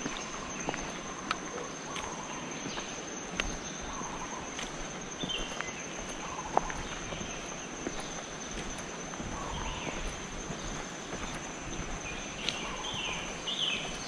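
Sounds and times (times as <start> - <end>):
continuous hiss: 0.0 - 14.0
footsteps on a path: 0.0 - 14.0
insect droning: 0.0 - 14.0
bird chirps: 3.6 - 14.0.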